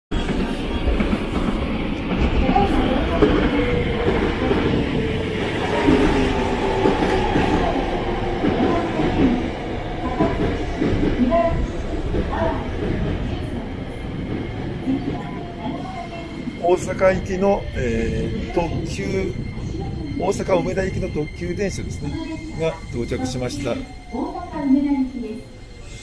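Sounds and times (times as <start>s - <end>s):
train wheels rumbling and clacking: 0.1s - 25.7s.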